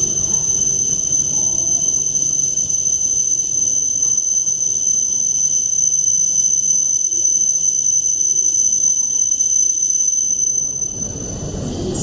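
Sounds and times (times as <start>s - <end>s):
train rumble: 0.0s - 2.8s, 10.8s - 12.0s
high-pitched whine: 0.0s - 12.0s.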